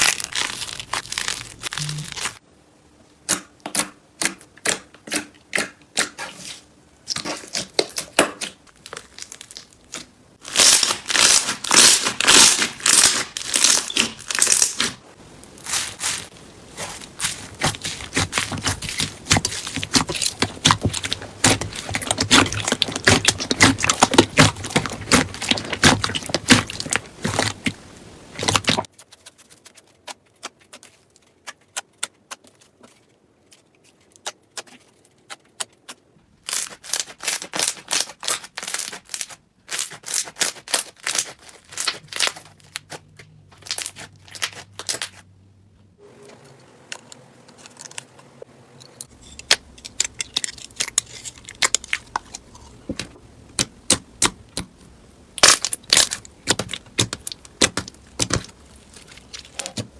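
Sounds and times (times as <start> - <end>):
slime crackling and popping: 0.0 - 2.4, 7.1 - 28.9, 36.5 - 43.0, 49.5 - 59.9.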